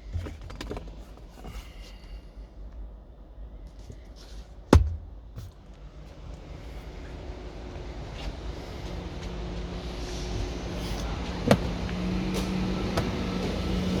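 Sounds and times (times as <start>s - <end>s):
car engine rumbling: 4.9s - 14.0s.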